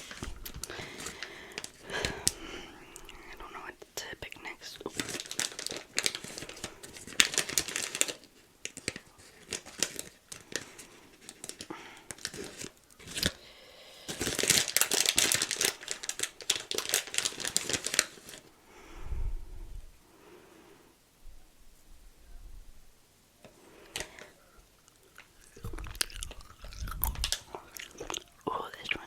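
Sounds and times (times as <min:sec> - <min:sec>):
packaging crumpling and tearing: 0:00.0 - 0:02.4, 0:04.6 - 0:18.5, 0:23.9 - 0:28.8.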